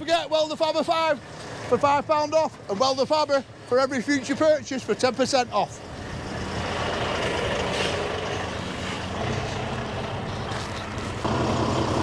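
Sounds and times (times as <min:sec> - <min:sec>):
diesel truck engine running: 0:05.8 - 0:12.0.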